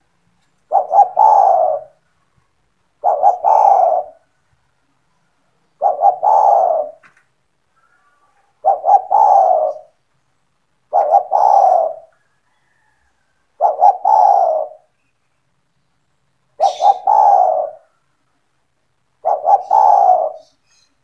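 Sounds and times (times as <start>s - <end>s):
dove cooing: 0.6s - 2.1s, 3.0s - 4.4s, 5.8s - 7.1s, 8.6s - 10.0s, 10.9s - 15.0s, 16.6s - 18.0s, 19.2s - 20.7s.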